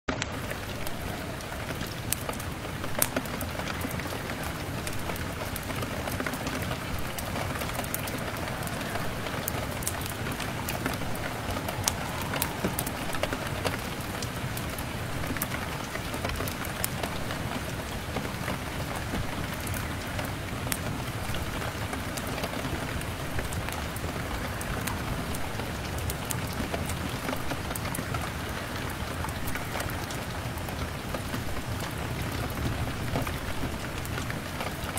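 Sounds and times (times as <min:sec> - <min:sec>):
rain on a window: 0:00.1 - 0:34.9.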